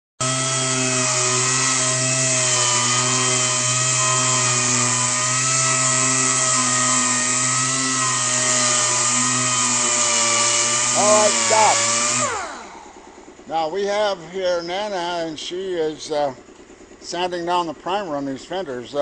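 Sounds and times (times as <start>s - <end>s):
power sander on metal: 0.2s - 13.6s.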